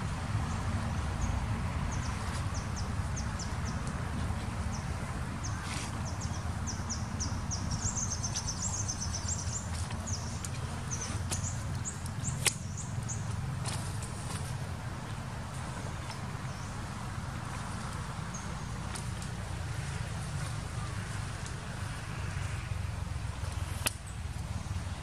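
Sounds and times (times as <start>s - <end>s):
steady low rumble: 0.0s - 25.0s
small birds chirping: 1.9s - 14.6s.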